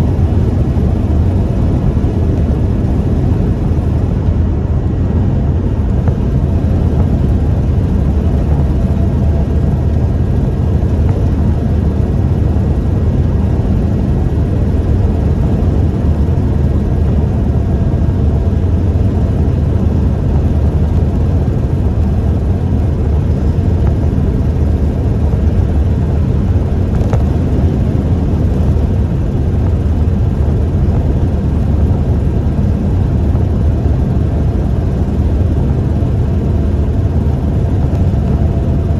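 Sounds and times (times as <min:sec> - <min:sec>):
pickup engine and road noise: 0:00.0 - 0:38.9.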